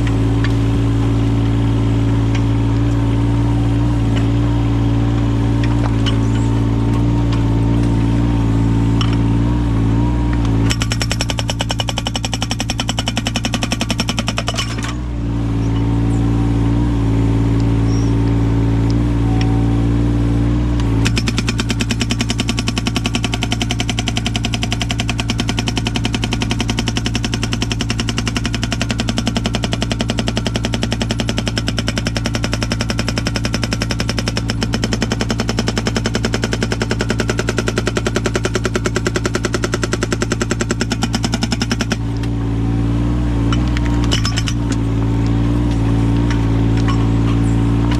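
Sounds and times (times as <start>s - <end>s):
diesel engine running: 0.0s - 47.9s
hydraulic breaker hammering wood: 10.5s - 15.0s, 21.0s - 42.3s, 43.5s - 47.9s.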